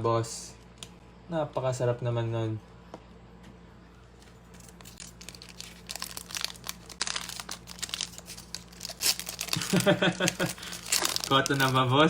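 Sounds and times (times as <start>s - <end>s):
faint steady hum: 0.0s - 12.0s
foil wrapper crinkling: 4.5s - 12.0s.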